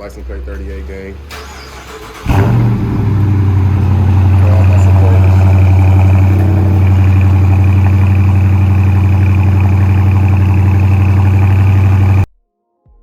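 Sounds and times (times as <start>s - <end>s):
car engine idling loudly: 2.0s - 12.3s.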